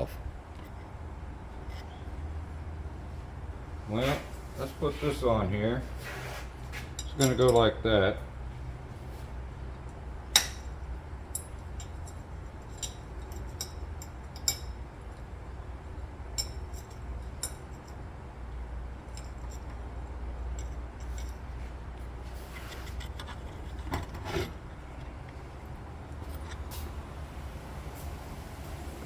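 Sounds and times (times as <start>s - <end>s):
steady low hum: 0.0s - 29.0s
light metal clicks and clinks: 6.8s - 7.8s, 9.9s - 22.2s, 24.9s - 26.9s.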